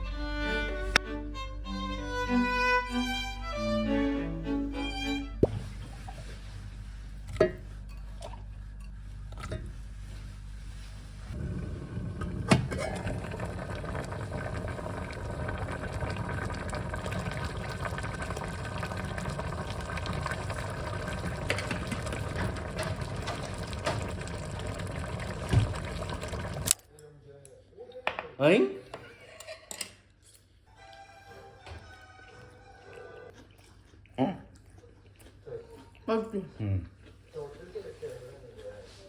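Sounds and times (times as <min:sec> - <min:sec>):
water running from a tap: 0:12.5 - 0:26.8.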